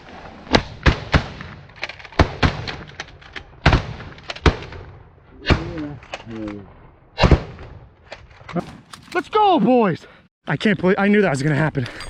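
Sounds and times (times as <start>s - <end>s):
faint cracks and clicks: 1.6s - 4.8s, 5.8s - 6.6s
shotgun blasts: 3.6s - 6.0s, 7.1s - 7.9s, 8.5s - 9.3s.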